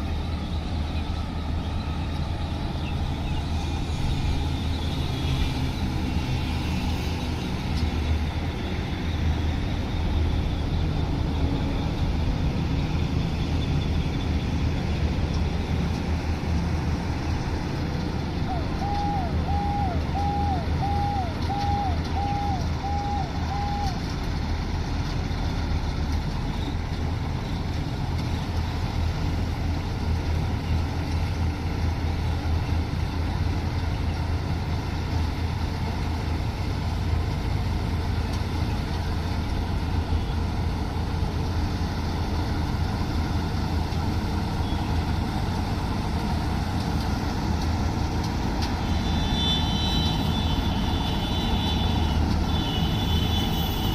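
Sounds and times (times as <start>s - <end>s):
combine harvester engine drone: 0.0s - 53.9s
reversing alarm beeping: 18.5s - 24.0s.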